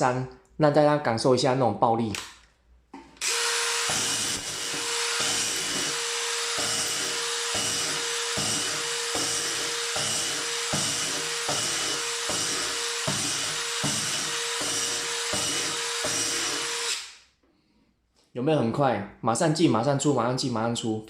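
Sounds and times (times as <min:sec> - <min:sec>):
impact driver whining: 0:03.2 - 0:17.2.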